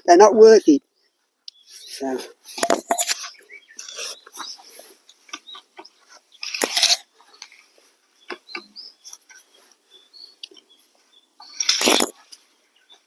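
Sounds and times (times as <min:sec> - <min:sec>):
spade digging into soil: 0:06.4 - 0:07.1, 0:11.4 - 0:12.4.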